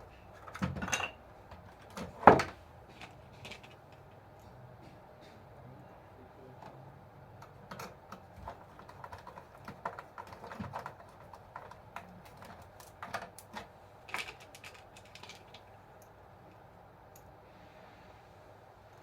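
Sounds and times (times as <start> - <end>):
small parts clicking and tapping: 7.4 - 17.3.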